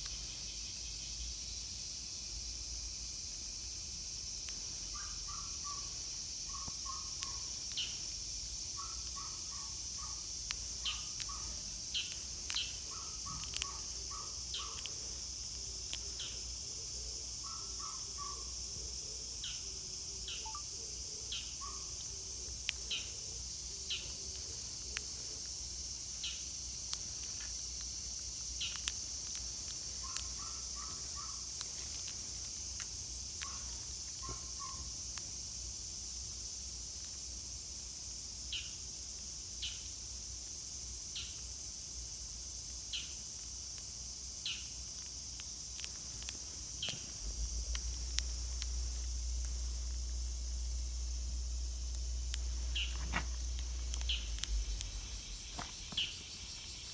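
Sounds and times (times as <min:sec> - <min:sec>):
high-pitched insect chorus: 0:00.0 - 0:56.9
sharp clicks: 0:10.4 - 0:16.4, 0:51.8 - 0:56.7.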